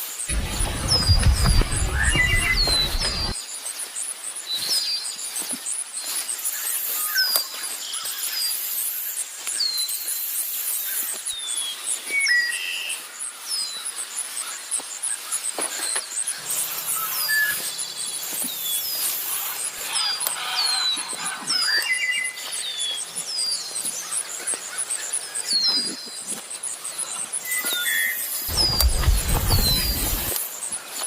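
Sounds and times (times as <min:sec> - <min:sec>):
low bird chirps: 0:00.3 - 0:03.4, 0:28.5 - 0:30.4.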